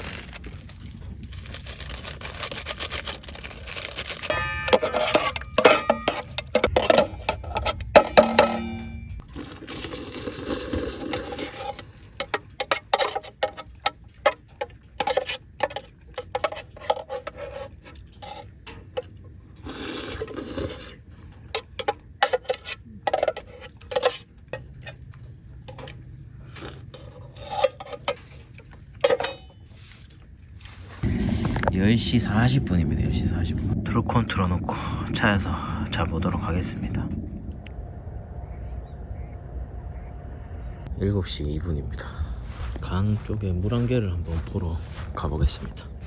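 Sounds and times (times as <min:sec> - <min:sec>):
dishes and utensils clinking: 0:04.3 - 0:09.2, 0:25.7 - 0:30.2
brief rushing noise: 0:31.0 - 0:33.9.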